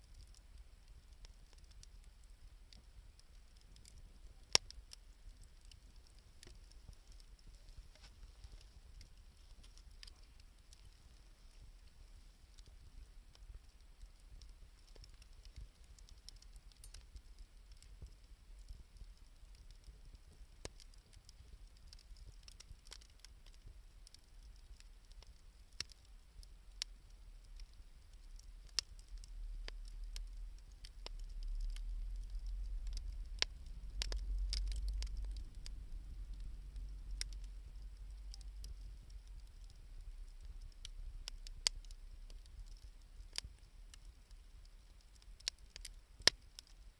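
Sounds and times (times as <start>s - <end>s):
wood fire crackling and popping: 0.0s - 46.9s
low rumble: 31.4s - 39.6s.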